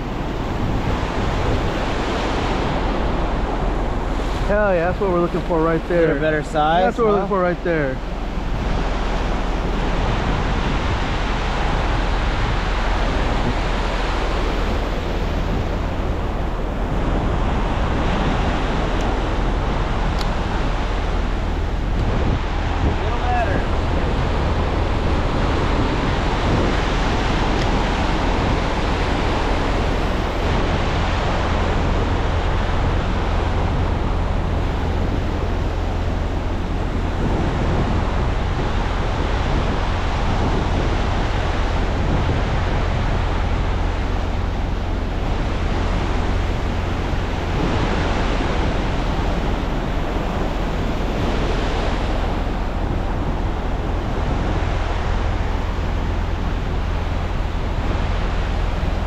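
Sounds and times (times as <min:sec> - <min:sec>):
ocean surf breaking: 0:00.0 - 0:59.0
wind rumbling on microphone: 0:00.0 - 0:59.0.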